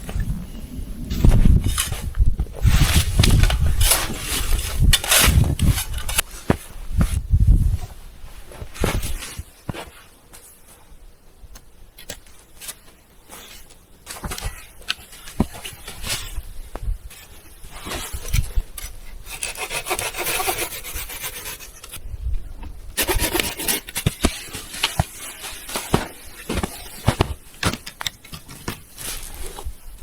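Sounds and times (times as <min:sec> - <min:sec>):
rough rasping scraping strokes: 0:17.1 - 0:22.0, 0:23.0 - 0:27.3.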